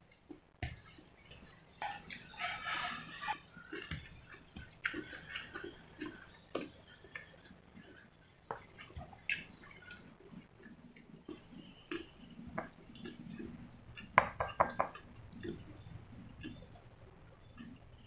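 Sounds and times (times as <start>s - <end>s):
chewing and mouth sounds: 3.6s - 14.2s.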